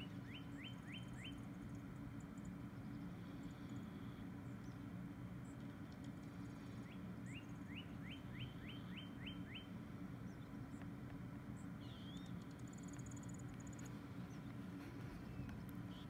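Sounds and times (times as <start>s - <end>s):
low background rumble: 0.0s - 16.0s
songbird singing: 0.0s - 16.0s
high bird trill: 11.7s - 14.4s.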